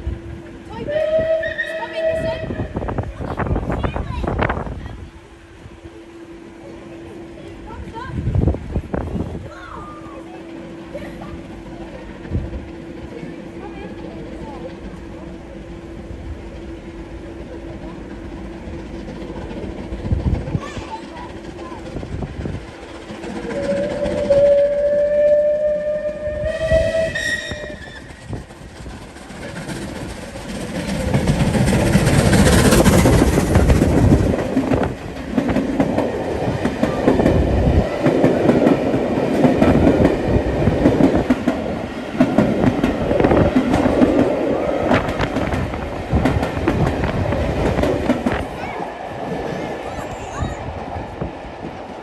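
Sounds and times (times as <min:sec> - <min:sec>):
train horn blast: 0:00.0 - 0:03.1, 0:23.5 - 0:28.1
train wheels clattering: 0:10.3 - 0:52.0.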